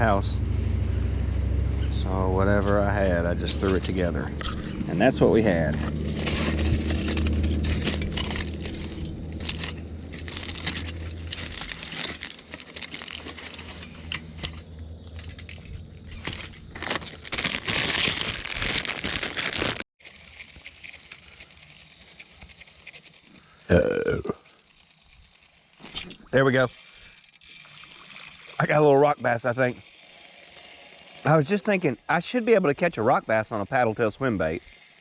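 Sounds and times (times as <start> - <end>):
low steady hum: 0.0 - 18.5
plastic crinkling and rustling: 5.8 - 23.4.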